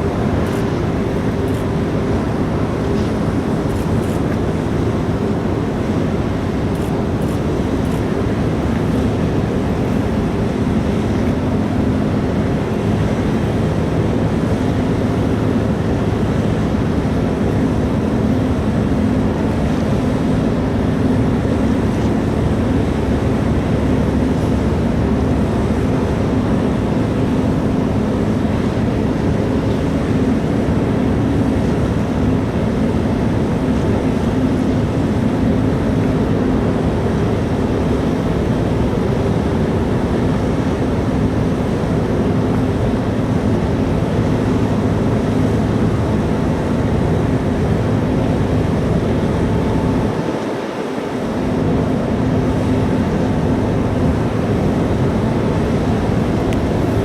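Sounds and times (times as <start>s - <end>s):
ship engines droning: 0.0s - 57.0s.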